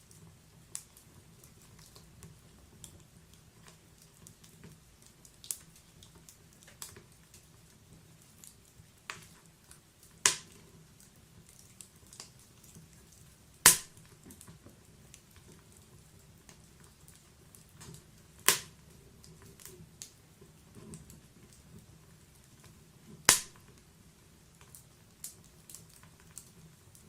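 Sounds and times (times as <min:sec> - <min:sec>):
wood fire crackling: 0:00.0 - 0:27.0
loud sharp pops: 0:10.2 - 0:10.6, 0:13.6 - 0:14.0, 0:18.5 - 0:18.8, 0:23.3 - 0:23.7.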